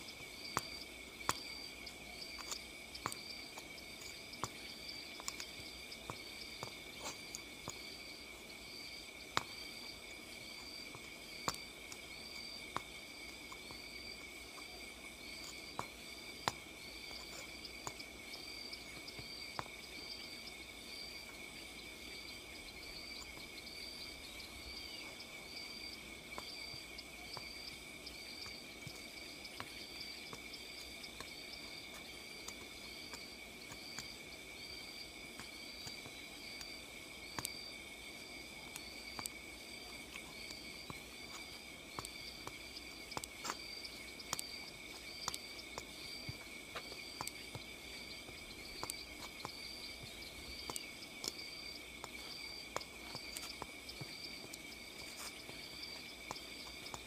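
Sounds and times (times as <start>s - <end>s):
insects and crickets chirring: 0.0s - 57.0s.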